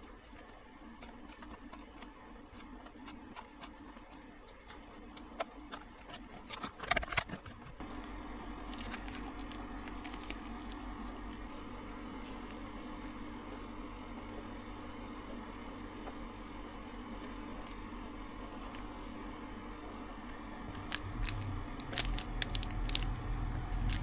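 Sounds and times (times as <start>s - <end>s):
steady low hum: 7.8s - 24.0s.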